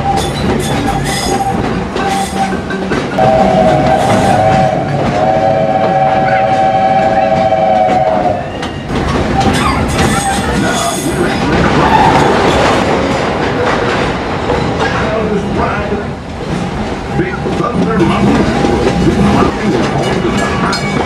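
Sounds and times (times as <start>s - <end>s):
train wheels clickety-clack on rails: 0.0s - 21.0s
steam locomotive whistle: 3.2s - 8.9s.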